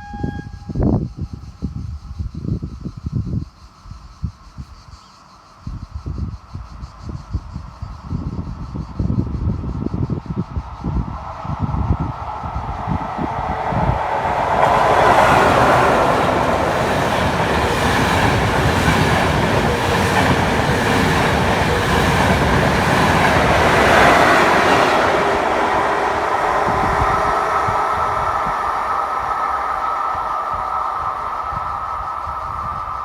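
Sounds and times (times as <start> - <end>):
train wheels rolling on rails: 9.8 - 33.0.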